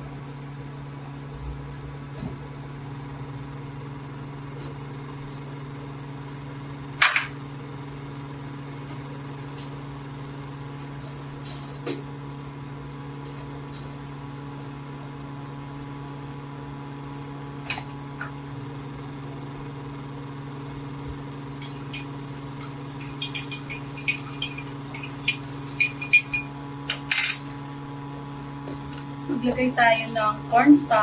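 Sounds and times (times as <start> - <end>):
steady hum: 0.0 - 31.0
utensils clinking: 21.6 - 27.7.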